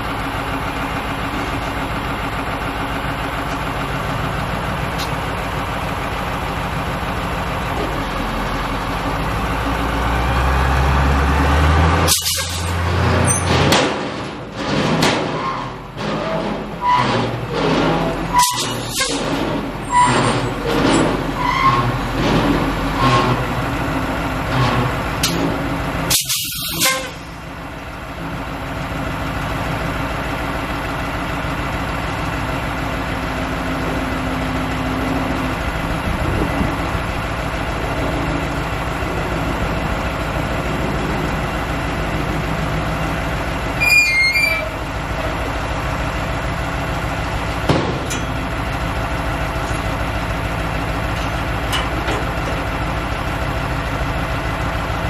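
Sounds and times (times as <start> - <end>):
dump truck diesel engine running: 0.0 - 55.0
short high-pitched toot: 43.8 - 44.8.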